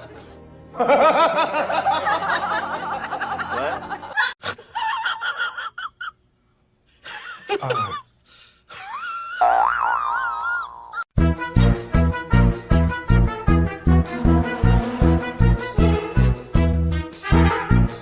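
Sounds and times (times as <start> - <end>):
person laughing: 7.0 - 8.1.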